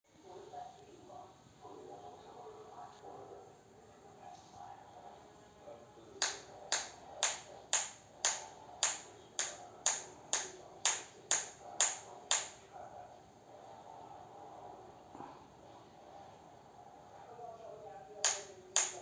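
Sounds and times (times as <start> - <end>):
sharp snaps: 6.2 - 12.7, 18.2 - 19.0.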